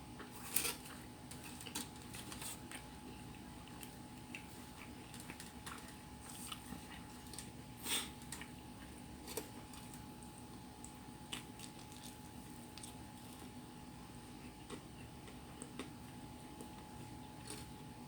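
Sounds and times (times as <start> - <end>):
faint steady hum: 0.0 - 18.0
chewing mouth clicks and smacks: 2.6 - 13.5.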